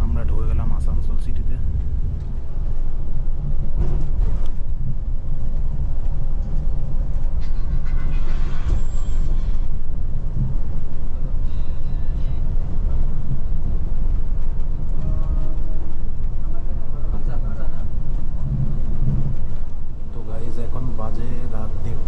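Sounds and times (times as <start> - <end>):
bus engine and road rumble: 0.0 - 22.0.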